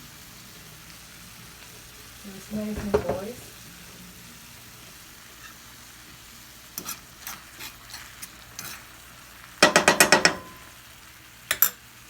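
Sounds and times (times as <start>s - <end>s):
chicken frying in oil: 0.0s - 12.0s
utensil knocking against pan: 2.8s - 3.3s, 9.6s - 10.6s.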